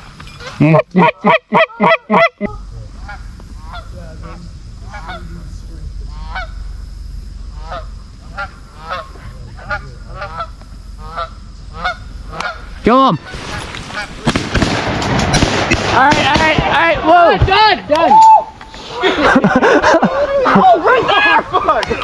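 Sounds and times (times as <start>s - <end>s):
geese honking: 0.4s - 16.9s.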